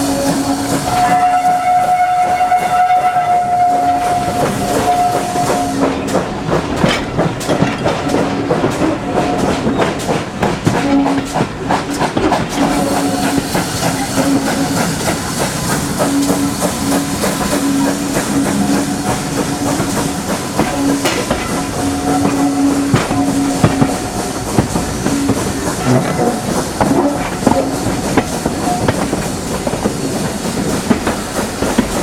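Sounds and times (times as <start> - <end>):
hiss: 0.0 - 2.7, 11.3 - 32.0
train wheels clicking on rails: 0.0 - 32.0.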